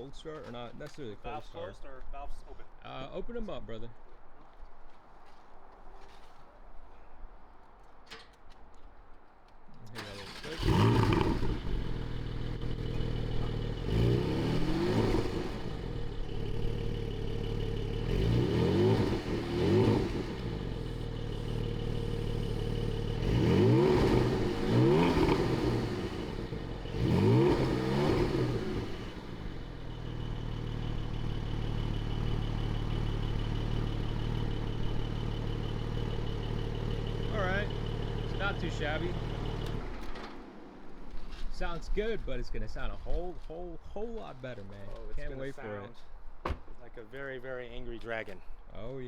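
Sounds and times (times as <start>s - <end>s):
car engine idling: 10.0s - 41.4s
car engine revving: 10.0s - 41.4s.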